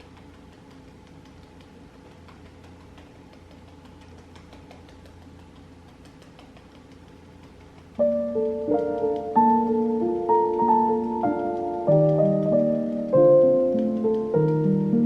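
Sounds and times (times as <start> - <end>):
faint clicks: 0.0 - 15.0
soft piano music: 8.0 - 15.0.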